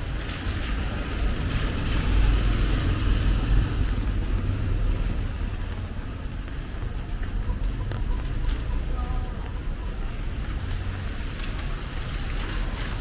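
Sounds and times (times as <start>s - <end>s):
tyre hiss on wet road: 0.0s - 5.3s
steady low rumble: 0.0s - 12.8s.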